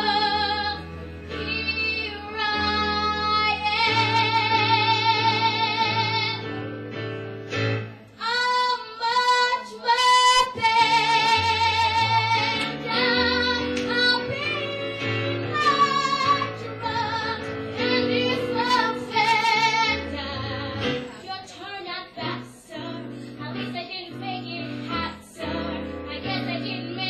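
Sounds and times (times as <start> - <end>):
woman singing with vibrato: 0.0 - 6.5, 8.2 - 27.0
instrumental accompaniment: 10.0 - 27.0.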